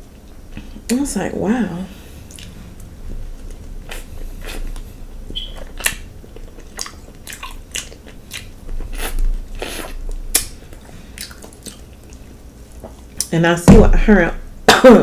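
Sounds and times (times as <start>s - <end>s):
person chewing wetly: 2.2s - 13.3s
lip smacks: 9.8s - 12.2s.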